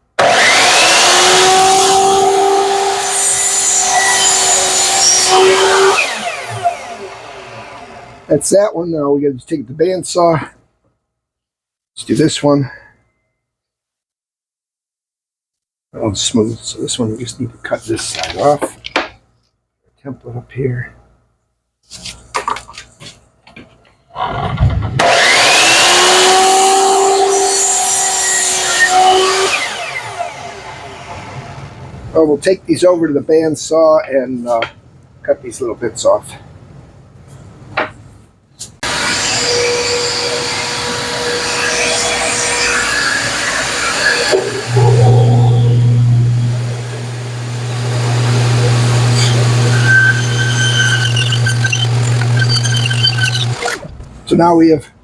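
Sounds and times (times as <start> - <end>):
power saw cutting wood: 0.2 - 8.3, 24.2 - 31.7, 38.8 - 54.0.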